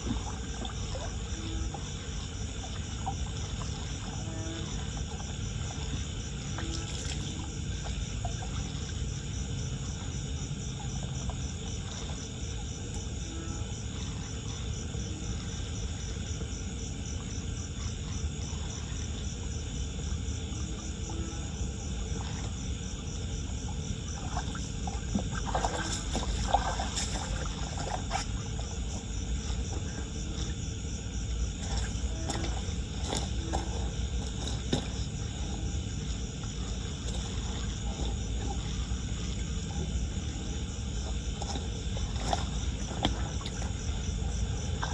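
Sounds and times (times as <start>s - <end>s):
insects chirping: 0.0s - 44.9s
short splashes or knocks: 24.2s - 30.5s, 31.6s - 35.6s, 41.3s - 44.9s.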